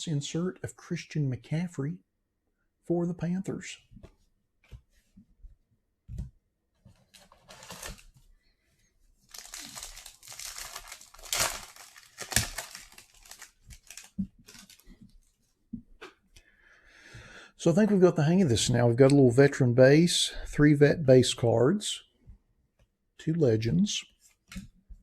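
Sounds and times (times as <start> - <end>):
foil wrapper tearing and crinkling: 7.2 - 8.0, 9.3 - 14.9.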